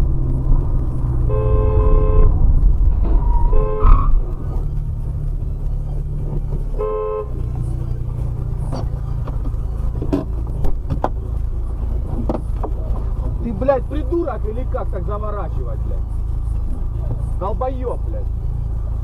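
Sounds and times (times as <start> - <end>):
road and engine noise in car: 0.0 - 19.0
car horn honk: 1.2 - 2.4, 3.2 - 4.3, 6.7 - 7.5.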